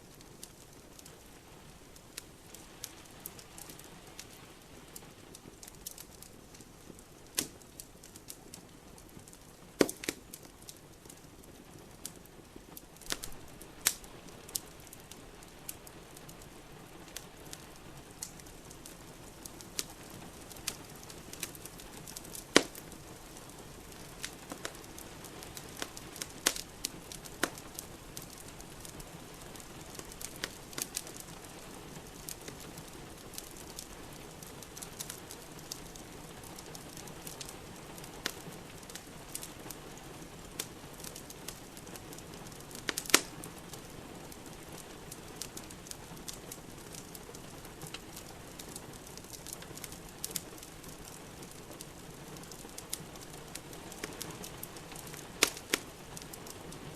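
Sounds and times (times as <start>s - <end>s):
wood fire crackling: 0.0s - 56.9s.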